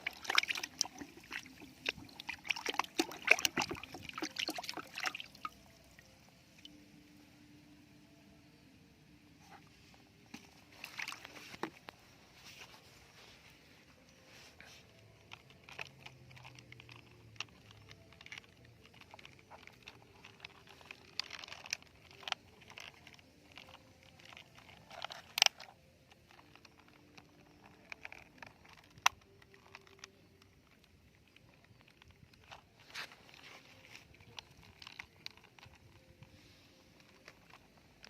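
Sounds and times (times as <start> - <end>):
plastic toys clicking and scraping: 0.0 - 5.7, 14.3 - 38.0.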